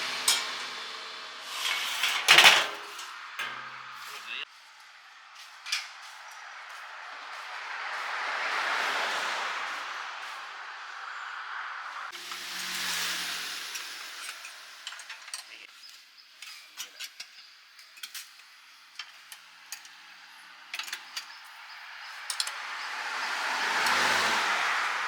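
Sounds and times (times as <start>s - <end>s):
metallic clicks and clinks: 16.4s - 22.9s.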